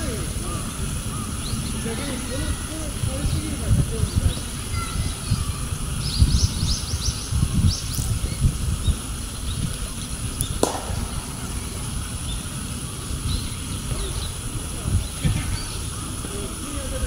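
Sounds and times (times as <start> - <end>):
wind on microphone: 0.0 - 17.0
small bird chirping: 4.2 - 16.6.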